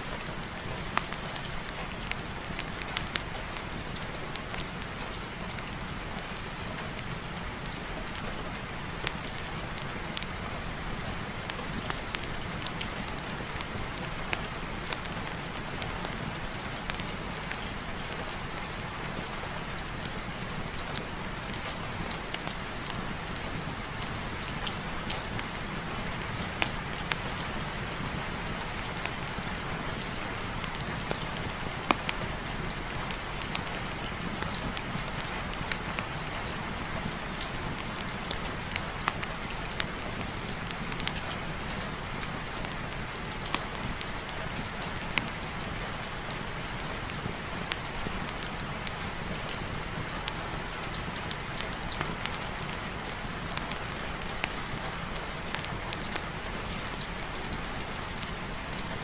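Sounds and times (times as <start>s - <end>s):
heavy rain: 0.0s - 59.0s
fireplace fire crackling: 0.1s - 59.0s.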